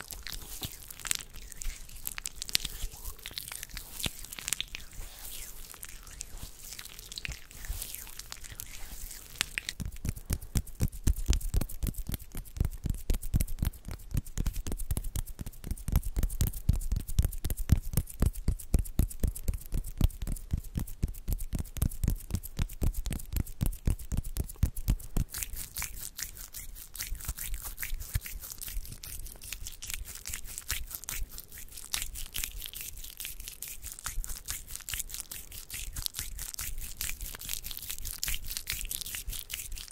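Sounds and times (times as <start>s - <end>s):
hand strokes near microphone: 0.0s - 10.2s.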